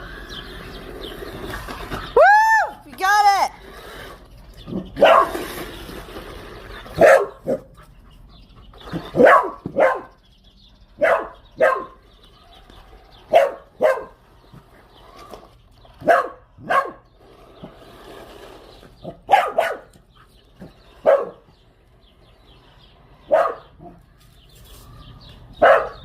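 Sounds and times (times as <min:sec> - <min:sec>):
dog barking: 0:05.0 - 0:05.4, 0:07.0 - 0:07.7, 0:09.2 - 0:10.2, 0:11.0 - 0:12.0, 0:13.3 - 0:14.2, 0:16.0 - 0:17.0, 0:19.3 - 0:19.9, 0:21.0 - 0:21.4, 0:23.3 - 0:24.0, 0:25.6 - 0:26.0.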